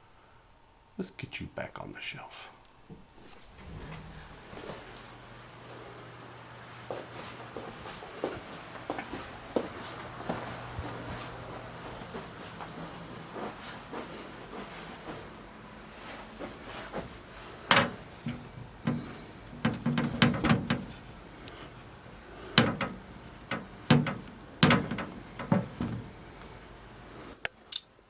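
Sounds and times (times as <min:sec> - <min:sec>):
model kit knocking and clattering: 0:22.6 - 0:26.1.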